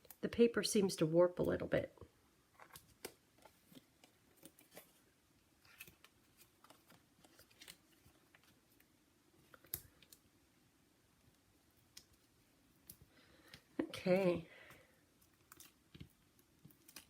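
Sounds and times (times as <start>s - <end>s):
paper rustling: 2.6s - 8.9s.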